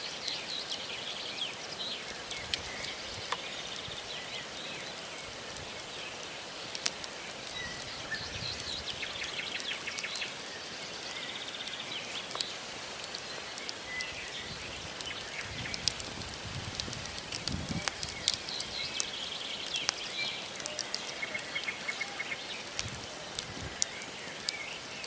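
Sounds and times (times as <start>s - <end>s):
campfire crackling and popping: 0.0s - 25.0s
small birds chirping: 0.0s - 25.0s.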